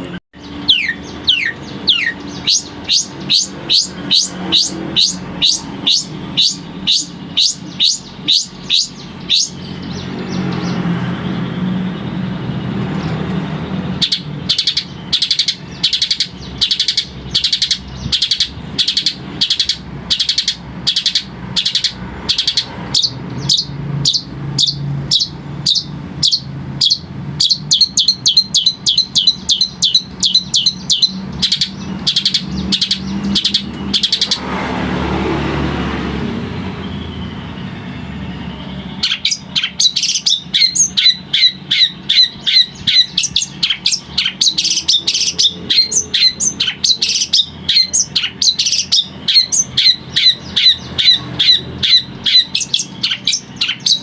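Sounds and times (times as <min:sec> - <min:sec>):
bird singing repeated notes: 0:00.0 - 0:54.0.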